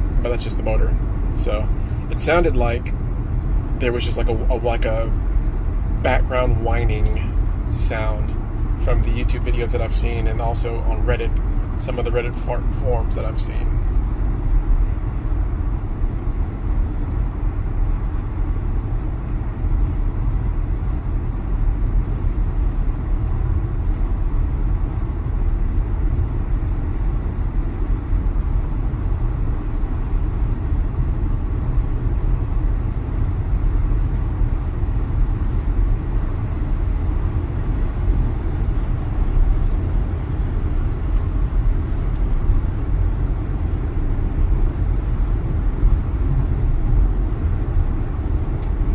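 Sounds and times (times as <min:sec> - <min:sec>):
tyre and wind noise in car: 0:12.6 - 0:48.9.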